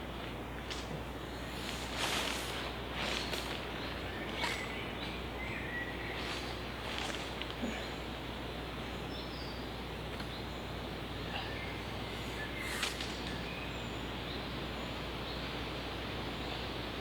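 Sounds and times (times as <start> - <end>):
rustling of cord and tarp: 0.2 - 8.2, 12.1 - 13.4.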